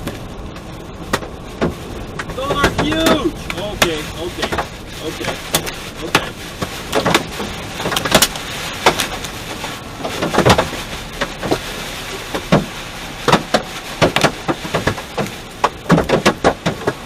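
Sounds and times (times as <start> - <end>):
hailstones striking a car: 0.0 - 17.0.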